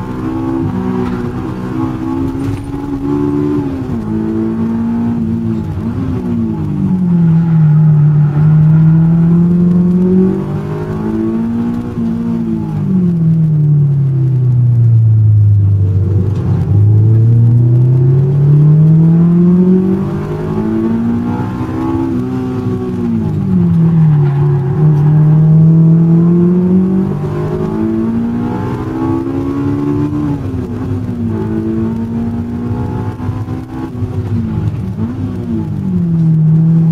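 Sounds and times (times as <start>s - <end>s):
car engine accelerating: 0.0s - 36.9s.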